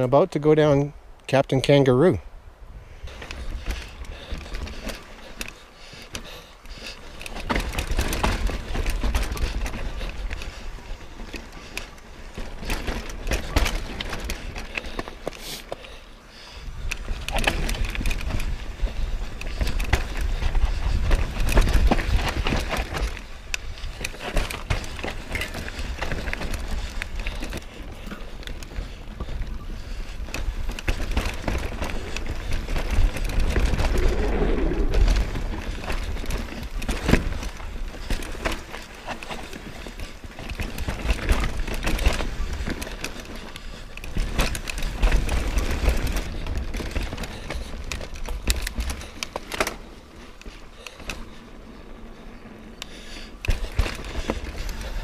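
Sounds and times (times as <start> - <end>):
bike tyres rolling over rock: 3.1 - 55.0
low rumble: 33.6 - 35.8.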